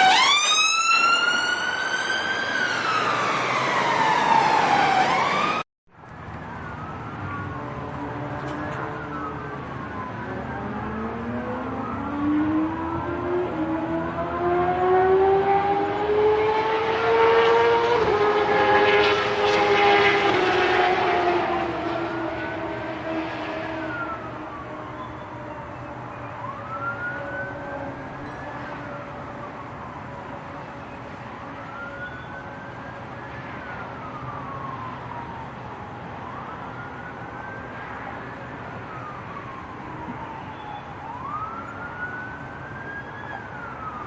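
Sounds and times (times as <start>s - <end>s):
police siren wailing: 0.0s - 44.0s
road noise rushing: 0.0s - 44.0s
car engine passing: 9.9s - 24.1s.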